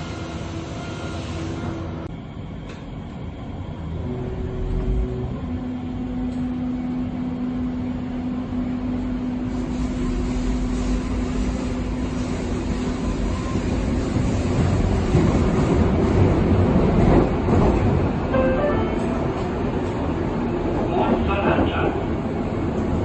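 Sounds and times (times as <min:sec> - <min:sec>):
train wheels rumbling on rails: 0:00.0 - 0:23.0
humming drive tone: 0:03.9 - 0:09.4.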